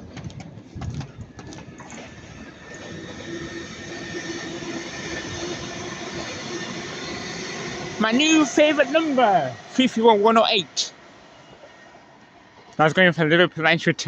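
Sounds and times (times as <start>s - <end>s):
electric train running on track: 0.0s - 14.0s
steady high tone: 2.2s - 12.0s.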